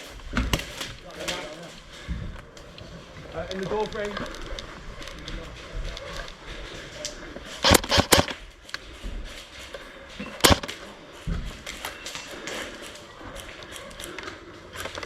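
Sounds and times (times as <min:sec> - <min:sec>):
airsoft gunfire cracks: 0:07.6 - 0:08.4, 0:10.4 - 0:10.8.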